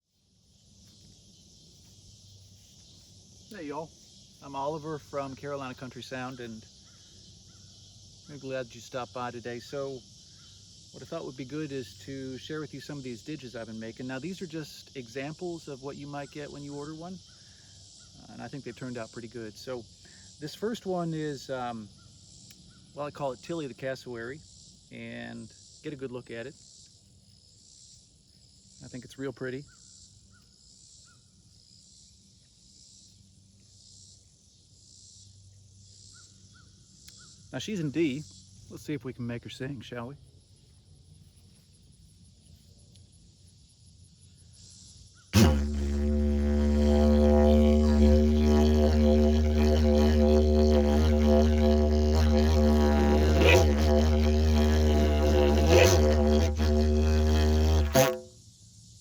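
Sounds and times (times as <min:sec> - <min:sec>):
insects buzzing: 0:00.1 - 0:59.0
short insect chirp: 0:00.1 - 0:59.0
didgeridoo low drone: 0:45.4 - 0:58.4
low steady hum: 0:45.4 - 0:58.4.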